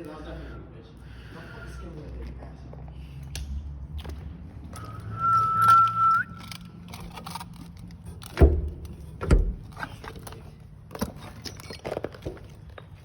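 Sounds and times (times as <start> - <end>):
metallic clicks and rattles: 6.4 - 10.4.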